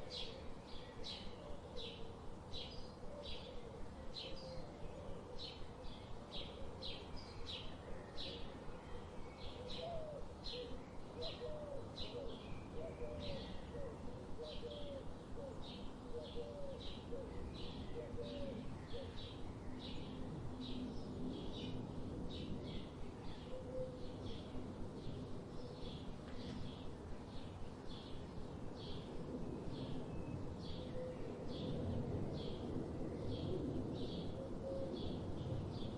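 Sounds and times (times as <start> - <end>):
low background hiss: 0.0 - 35.9.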